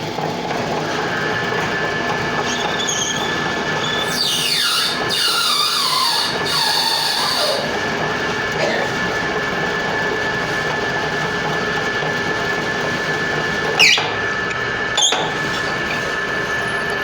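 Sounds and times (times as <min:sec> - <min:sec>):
lathe humming and whining: 0:00.0 - 0:17.0
high cutting squeals: 0:02.2 - 0:07.9, 0:13.8 - 0:17.0.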